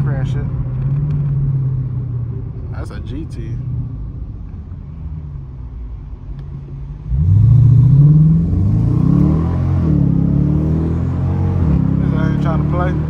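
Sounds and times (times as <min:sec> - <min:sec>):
car engine revving: 0:06.9 - 0:13.0.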